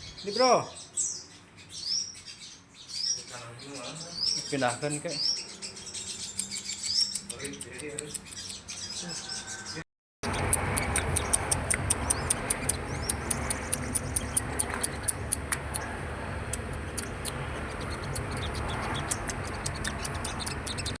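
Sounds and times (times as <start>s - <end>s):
songbird chipping: 0.0s - 21.0s
steady low rumble: 10.2s - 21.0s.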